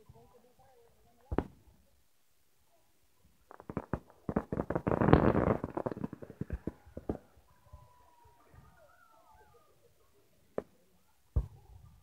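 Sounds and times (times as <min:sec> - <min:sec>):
fireworks bangs and pops: 0:01.2 - 0:01.7, 0:03.4 - 0:07.4
fireworks crackling: 0:03.4 - 0:07.5.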